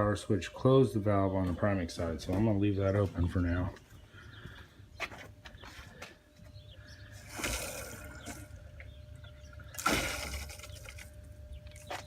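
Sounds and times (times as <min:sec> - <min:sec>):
faint steady hum: 0:00.0 - 0:12.0
water gushing and splashing: 0:09.7 - 0:11.1.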